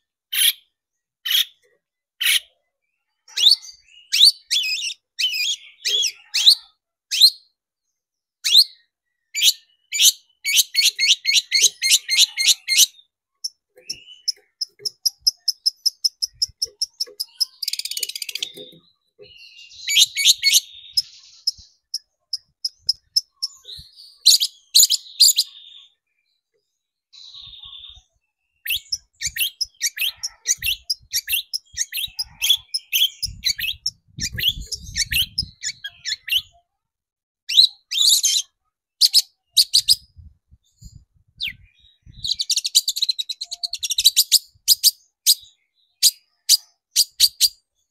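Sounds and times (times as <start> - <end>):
harsh scratchy bird chattering: 0.3 - 0.6, 1.2 - 1.6, 10.0 - 25.5, 28.6 - 36.6
shrike singing: 10.5 - 25.6.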